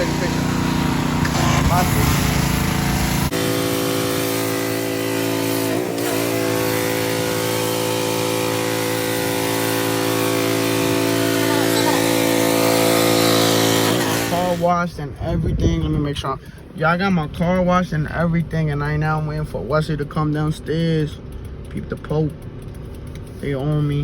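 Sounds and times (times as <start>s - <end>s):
machine humming: 0.0s - 14.6s.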